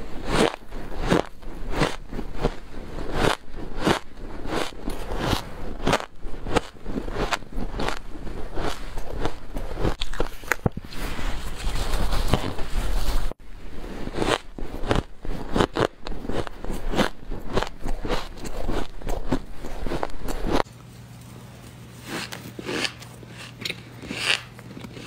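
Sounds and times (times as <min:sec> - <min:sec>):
crunching bites into frost: 0:14.2 - 0:20.6.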